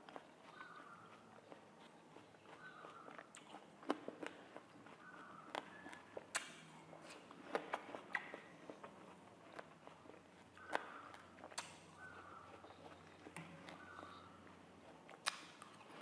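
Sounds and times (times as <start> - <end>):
watermelon crunching while chewed: 0.0 - 16.0
mouth clicks: 7.5 - 8.5, 10.6 - 14.4, 15.1 - 15.9.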